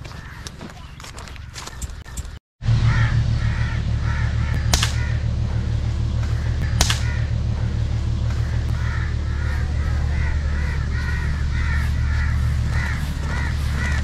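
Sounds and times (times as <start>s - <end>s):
rapid bird calls: 0.0s - 14.0s
loud low hum: 2.6s - 14.0s
sharp clicks: 4.6s - 5.1s, 6.2s - 7.2s.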